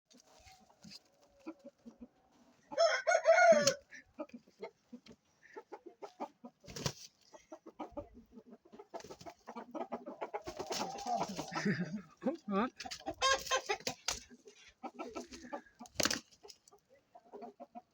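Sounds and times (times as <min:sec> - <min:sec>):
soft clucks and clicks: 0:00.1 - 0:02.8, 0:03.5 - 0:17.9
rooster crowing: 0:02.7 - 0:03.8.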